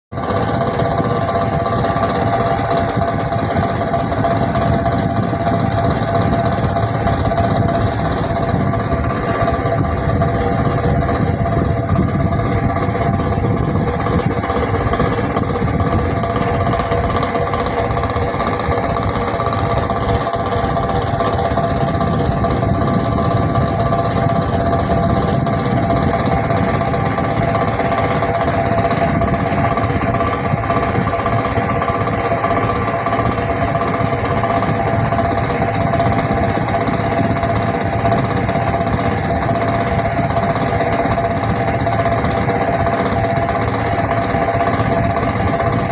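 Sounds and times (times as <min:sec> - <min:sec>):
constant low rumble: 0:00.1 - 0:45.9
fan whine: 0:00.1 - 0:45.9.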